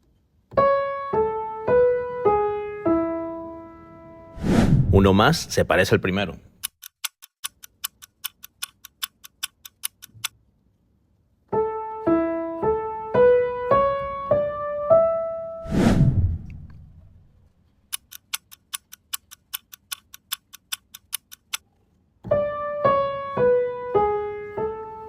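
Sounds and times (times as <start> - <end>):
piano-toned keyboard melody: 0.5 - 4.4, 11.5 - 15.6, 22.2 - 25.0
metronome clicks: 6.6 - 10.4, 17.9 - 21.6.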